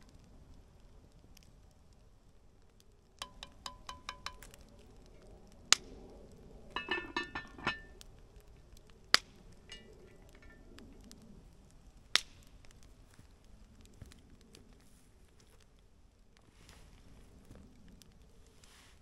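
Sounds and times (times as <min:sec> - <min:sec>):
kitchenware clinking: 0:06.8 - 0:07.9, 0:09.7 - 0:10.6.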